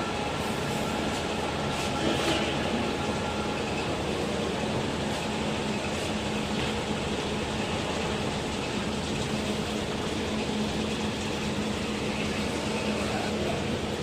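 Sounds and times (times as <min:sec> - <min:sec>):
low machinery hum: 0:00.0 - 0:14.0.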